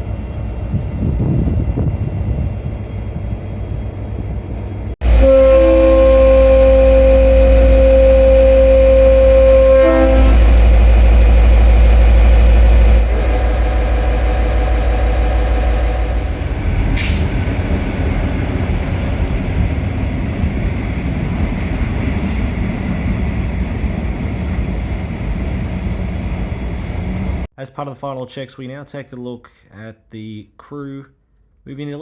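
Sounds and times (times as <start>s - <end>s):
locomotive low rumble: 0.0s - 27.5s
air release hiss: 17.0s - 17.4s.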